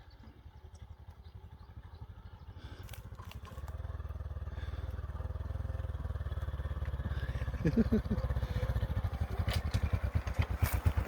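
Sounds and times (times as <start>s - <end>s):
motorbike engine at low revs: 0.0s - 11.0s.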